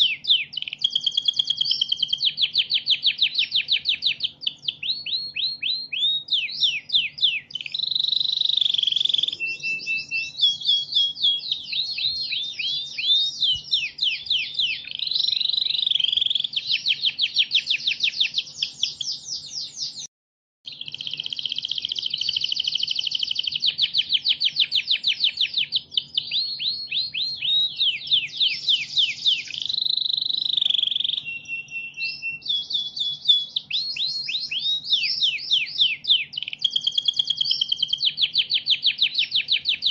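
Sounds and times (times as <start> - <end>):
canary singing trills: 0.0 - 20.1, 20.7 - 39.9.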